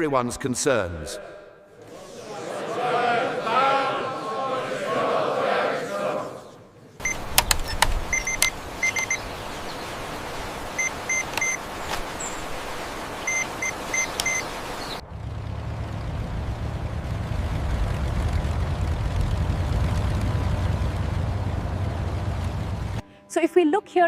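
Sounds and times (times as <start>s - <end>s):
short electronic beeps: 7.0s - 9.2s, 10.8s - 11.6s, 13.2s - 14.5s
sharp clicks: 7.1s - 9.1s, 11.2s - 12.1s, 14.1s - 14.4s
steady low rumble: 15.0s - 23.0s.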